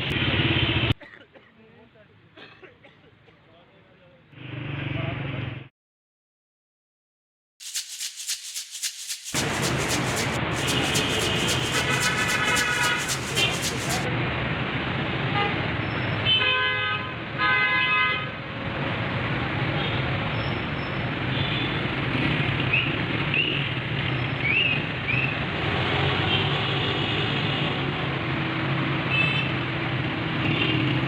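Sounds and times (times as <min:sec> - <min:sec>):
road traffic: 0:18.5 - 0:31.0.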